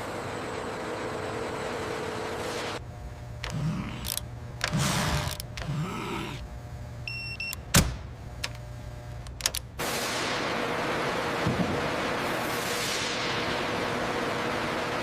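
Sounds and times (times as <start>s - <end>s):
sharp mechanical clicks: 3.4s - 5.8s, 9.2s - 9.8s.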